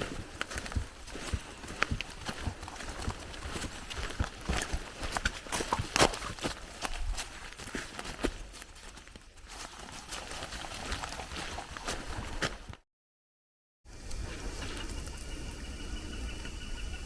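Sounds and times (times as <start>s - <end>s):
footsteps on muddy trail: 0.0s - 12.8s.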